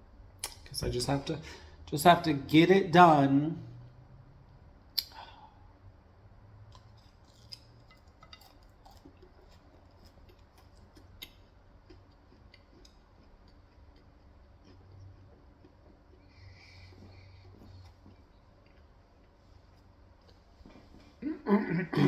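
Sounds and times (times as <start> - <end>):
person chewing fried chicken: 6.6 - 21.2.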